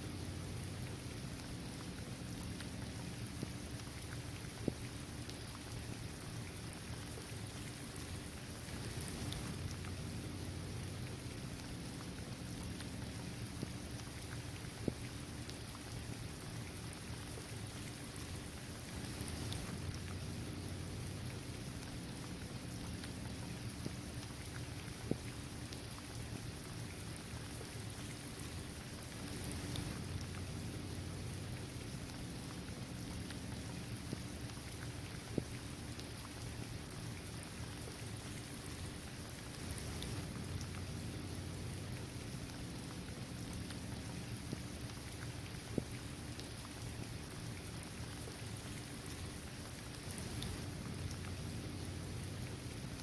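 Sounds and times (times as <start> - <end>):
steady rain: 0.0 - 53.0
single raindrops ticking: 29.1 - 36.1, 49.9 - 51.7.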